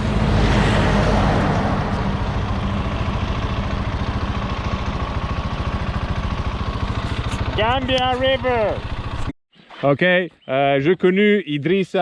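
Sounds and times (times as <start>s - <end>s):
motorcycle engine at low revs: 0.0s - 9.3s.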